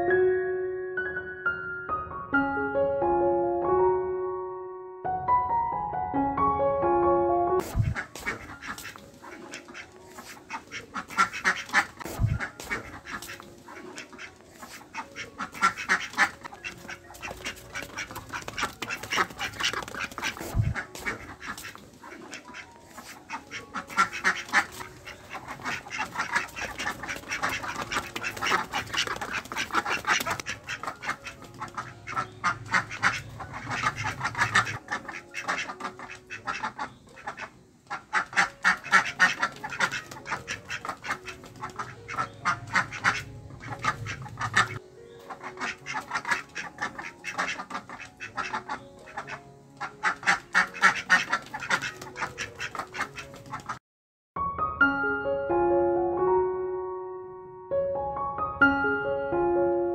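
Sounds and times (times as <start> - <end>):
ducks quacking: 7.6 - 53.8.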